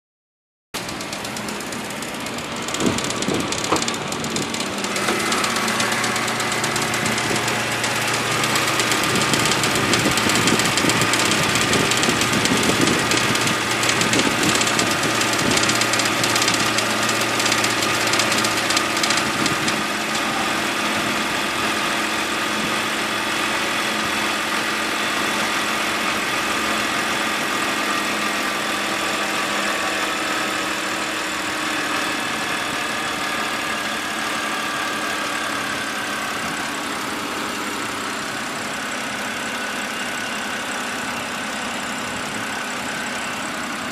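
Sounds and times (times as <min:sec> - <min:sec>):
engine lifter ticking: 0:00.8 - 0:21.5
car engine idling: 0:00.8 - 0:43.9
loud rattle: 0:00.8 - 0:43.9.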